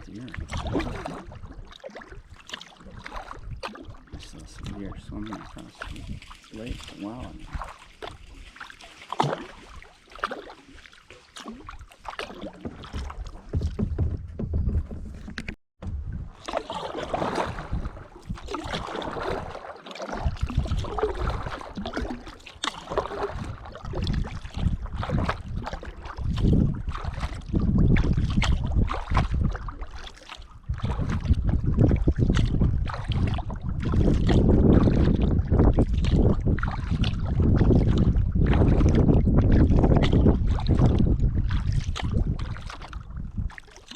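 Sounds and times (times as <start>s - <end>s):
paddle strokes splashing: 0.0s - 43.9s
water moving along hull: 0.0s - 43.9s
wind buffeting microphone: 3.0s - 8.5s, 12.6s - 19.5s, 20.2s - 22.2s, 22.9s - 29.9s, 30.6s - 43.6s.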